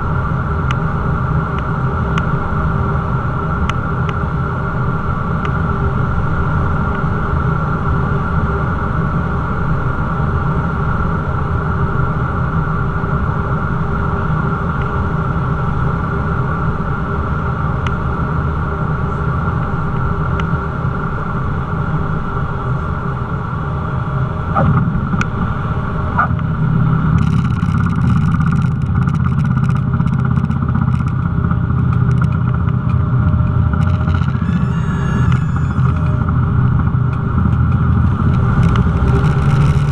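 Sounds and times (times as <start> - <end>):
propeller plane engine drone: 0.0 - 39.9
faint clicks: 27.2 - 31.3.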